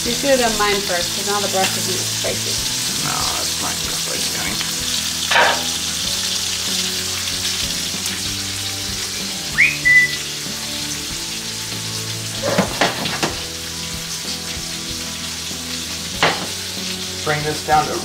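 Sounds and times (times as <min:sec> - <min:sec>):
food sizzling in skillets: 0:00.0 - 0:18.0
short whistle: 0:09.5 - 0:10.3
skillet knocks: 0:12.4 - 0:13.5, 0:16.2 - 0:16.6.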